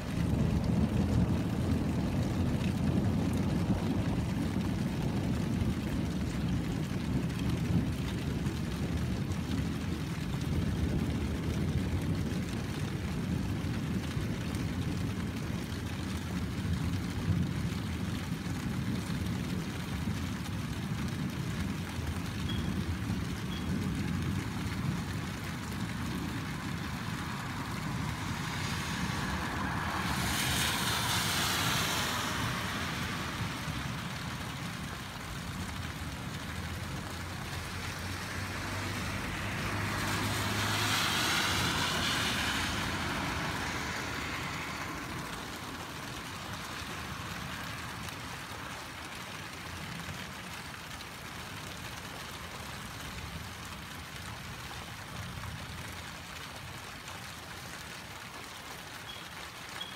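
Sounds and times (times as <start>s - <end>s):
steady rain on wet street: 0.0s - 59.9s
low engine hum: 21.4s - 49.1s
vehicle hissing past on wet road: 25.6s - 49.6s.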